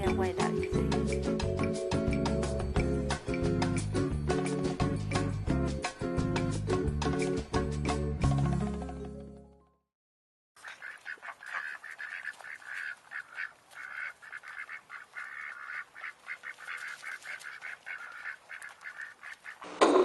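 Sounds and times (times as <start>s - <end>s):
ducks quacking: 10.6s - 19.8s.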